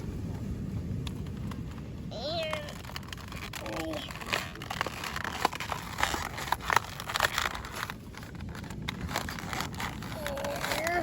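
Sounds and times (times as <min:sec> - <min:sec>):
plastic packaging crinkling: 0:02.4 - 0:11.0.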